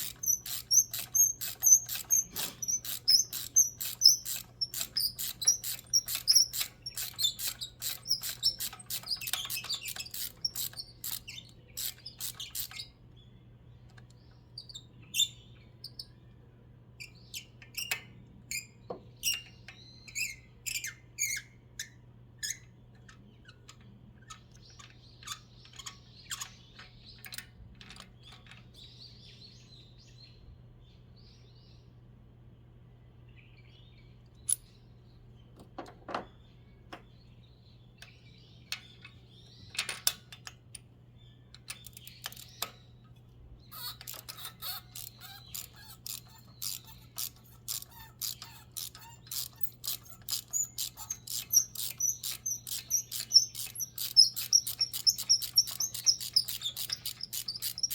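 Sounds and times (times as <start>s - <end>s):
clicks and knocks: 35.6s - 36.3s.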